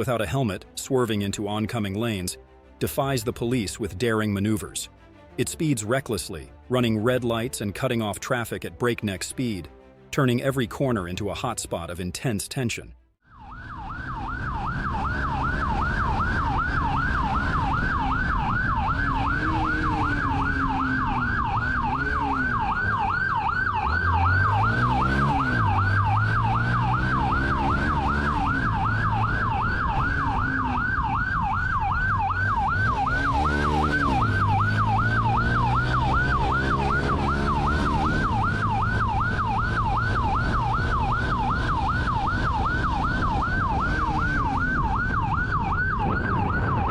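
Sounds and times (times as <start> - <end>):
police siren yelping: 13.3 - 46.9
car engine accelerating: 13.6 - 46.9.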